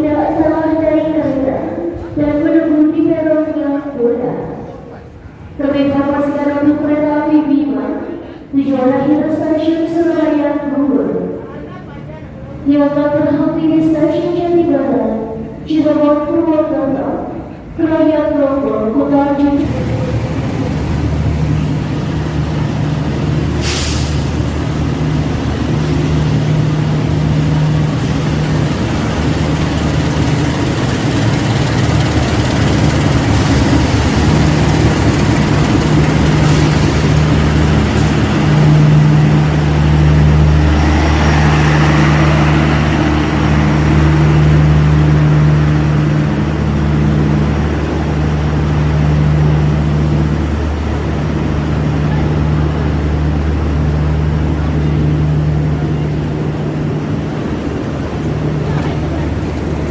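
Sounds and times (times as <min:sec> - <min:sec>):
train diesel engine humming: 0:00.0 - 0:59.9
air hiss: 0:23.5 - 0:24.5.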